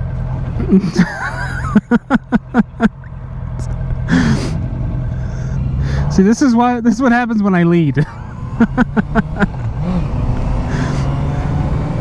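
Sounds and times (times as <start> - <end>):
motorcycle engine drone: 0.0 - 12.0
man laughing: 0.6 - 3.1, 8.0 - 10.1, 10.7 - 11.3.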